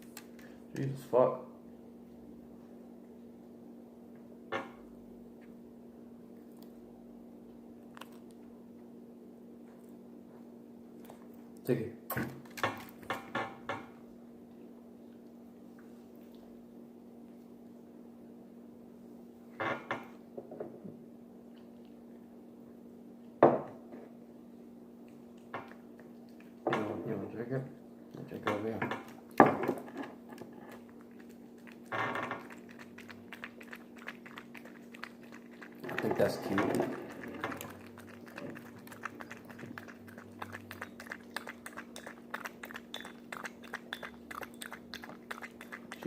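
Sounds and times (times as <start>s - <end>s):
close-up chewing: 7.8s - 8.5s, 21.4s - 22.2s, 25.0s - 26.7s, 29.0s - 46.0s
wet mouth clicks and smacks: 30.8s - 35.8s, 37.0s - 46.0s.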